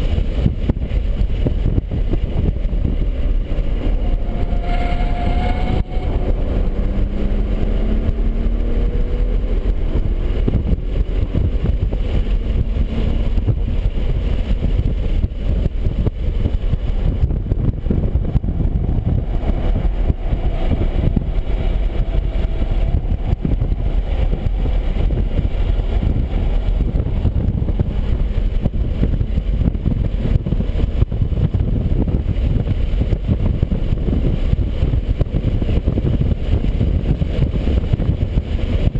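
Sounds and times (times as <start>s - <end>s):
wind and road noise: 0.0s - 38.9s
car engine revving hard: 3.8s - 13.9s.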